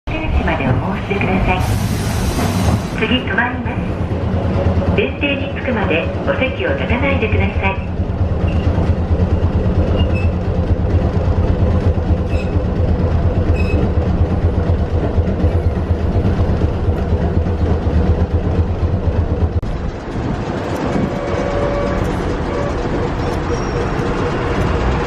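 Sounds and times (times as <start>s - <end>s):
streetcar rumbling on rails: 0.0s - 25.0s
high wheel squeaks: 8.4s - 8.8s, 9.8s - 10.6s, 12.1s - 12.7s, 13.4s - 14.0s, 20.7s - 25.0s.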